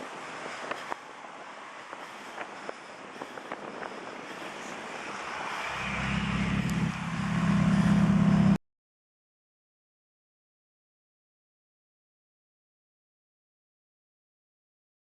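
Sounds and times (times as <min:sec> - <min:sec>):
street traffic noise: 0:00.0 - 0:08.6
car engine revving: 0:05.1 - 0:08.6.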